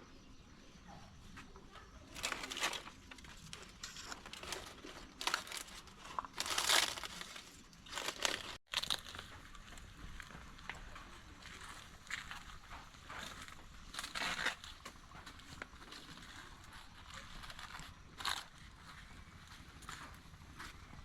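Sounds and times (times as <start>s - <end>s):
rustling and crinkling: 1.2s - 21.0s.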